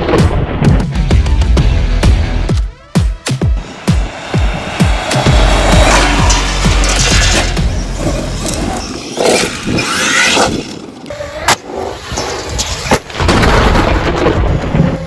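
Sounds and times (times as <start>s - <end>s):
tyres running on asphalt: 3.5s - 11.1s
electric motor revving: 3.6s - 11.1s.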